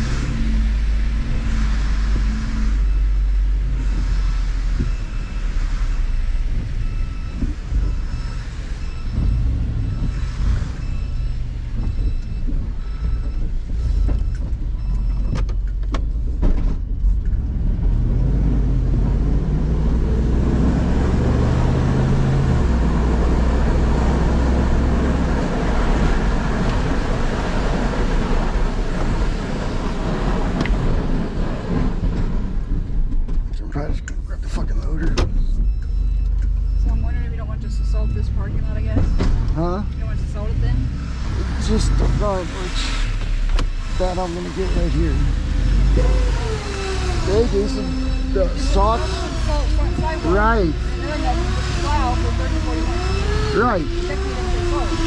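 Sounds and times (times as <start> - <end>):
rushing noise: 0.0 - 14.0, 17.5 - 33.2, 39.9 - 55.0
diesel truck engine under load: 0.0 - 55.0
faint high beeps: 34.9 - 41.1, 43.8 - 54.9.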